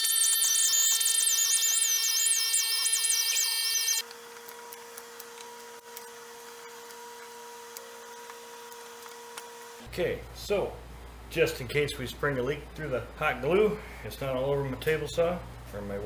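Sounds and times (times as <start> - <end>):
high wavering squeal: 0.0 - 4.0.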